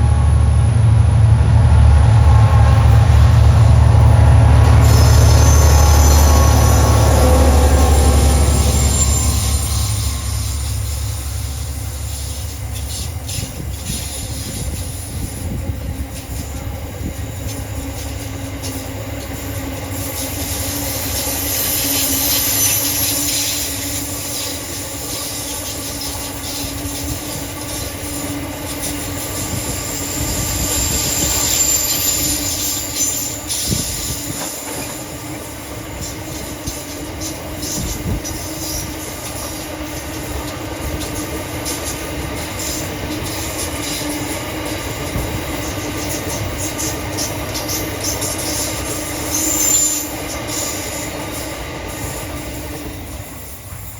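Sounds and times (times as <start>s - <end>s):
train rumbling past: 0.0s - 53.9s
high-pitched wheel squeal: 4.7s - 14.7s, 28.8s - 34.5s, 46.1s - 51.1s.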